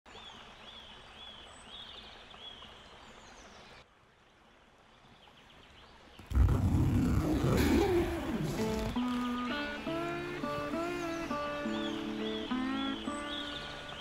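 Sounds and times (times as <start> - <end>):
steady outdoor hiss: 0.1 - 14.0
bird chirping: 5.2 - 14.0.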